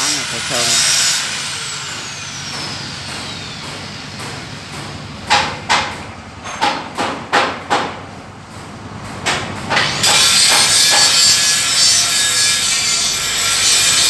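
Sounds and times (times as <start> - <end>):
angle grinder whine: 0.0 - 4.2.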